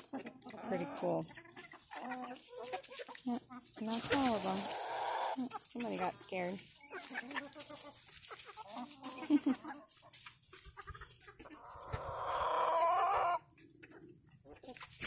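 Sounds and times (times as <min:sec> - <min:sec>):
chickens clucking: 0:00.0 - 0:15.0
long drawn-out chicken call: 0:04.6 - 0:05.4, 0:11.5 - 0:13.5.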